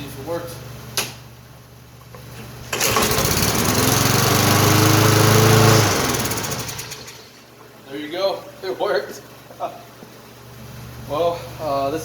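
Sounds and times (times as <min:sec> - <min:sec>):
lawn mower engine pull-started: 0:02.6 - 0:07.4.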